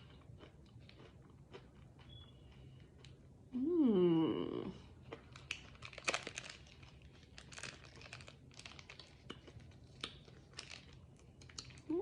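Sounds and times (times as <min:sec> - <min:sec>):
snack packaging crinkling: 0:05.1 - 0:11.9.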